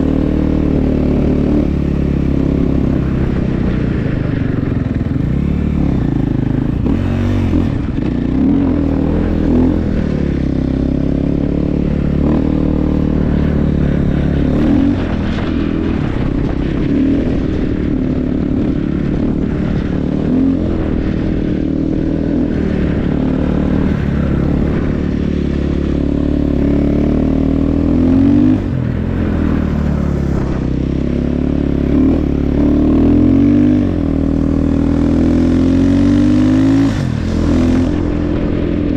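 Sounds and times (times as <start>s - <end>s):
snow bike engine revving: 0.0s - 38.9s.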